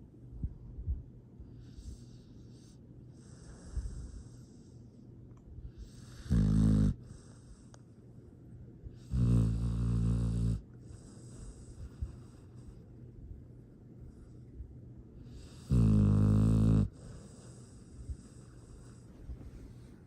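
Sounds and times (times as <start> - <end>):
dog snoring: 1.6 - 4.8, 5.7 - 7.7, 8.9 - 12.8, 15.2 - 20.0.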